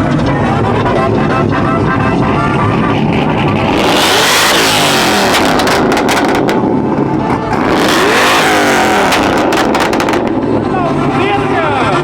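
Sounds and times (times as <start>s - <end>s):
vehicle engine revving hard: 1.0s - 10.6s.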